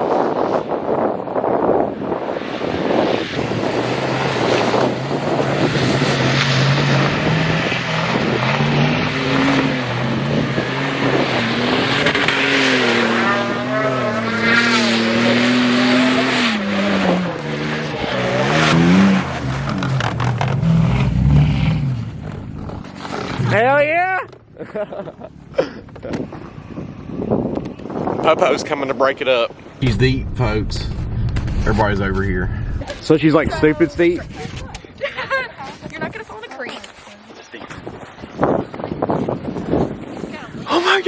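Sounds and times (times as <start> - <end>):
road and wind noise: 0.0 - 41.0
vehicle engine revving: 2.9 - 23.8, 29.8 - 34.4.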